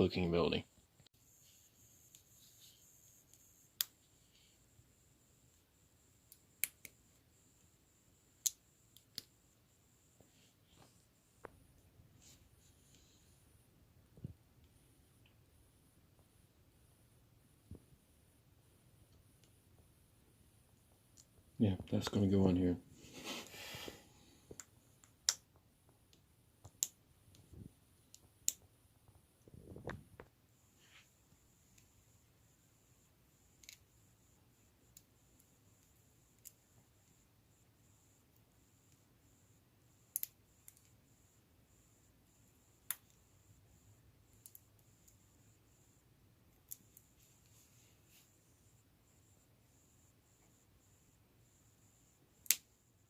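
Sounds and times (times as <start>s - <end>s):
faint rustle of parts: 46.7s - 48.7s.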